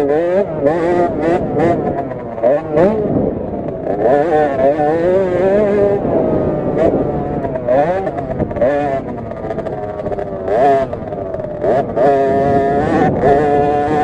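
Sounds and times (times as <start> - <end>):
minibike engine revving: 0.0 - 14.0.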